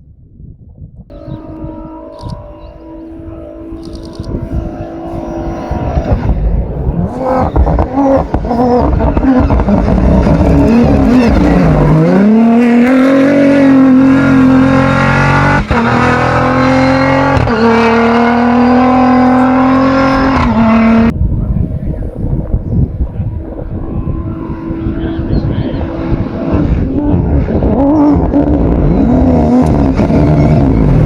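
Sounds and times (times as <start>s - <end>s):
gear changes: 1.1s - 31.0s
race car engine accelerating: 1.1s - 31.0s
tyre noise: 4.3s - 21.1s.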